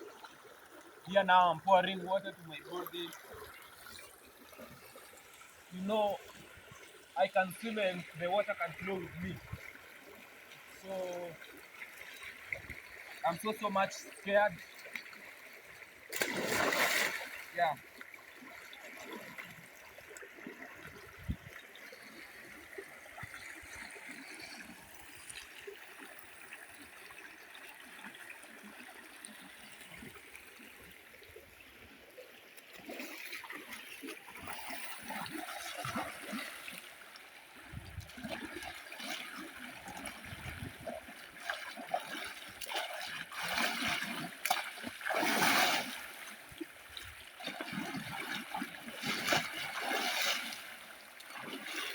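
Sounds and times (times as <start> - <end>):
river flowing: 0.0 - 32.2
water splashing and trickling: 0.0 - 51.9.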